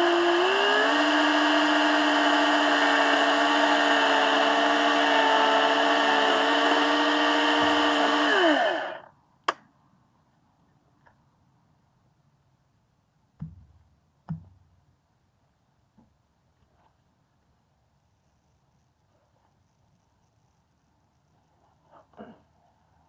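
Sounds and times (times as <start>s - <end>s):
electric saw motor running: 0.0s - 9.1s.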